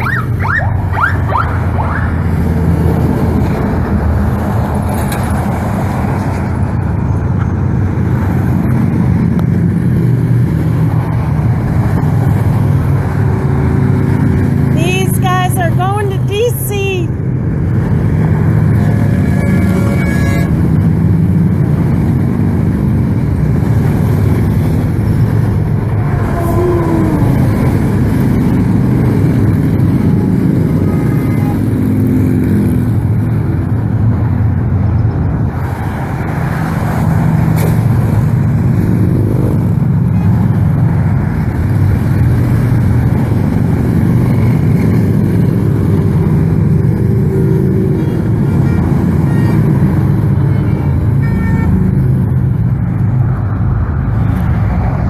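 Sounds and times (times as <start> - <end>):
motorcycles rumbling past: 17.5 - 34.4
horn toots: 18.8 - 20.8, 25.8 - 28.4, 47.8 - 52.2.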